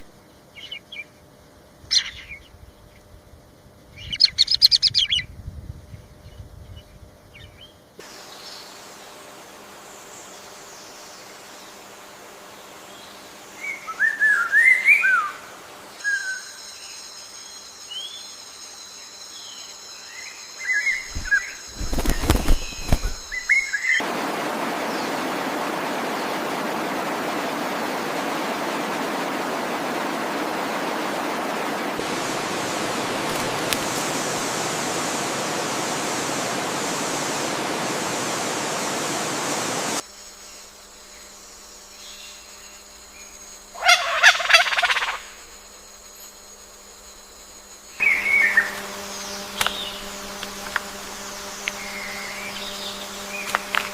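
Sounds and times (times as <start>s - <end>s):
high insect tones: 0.0s - 53.9s
loud rushing noise: 21.1s - 40.0s.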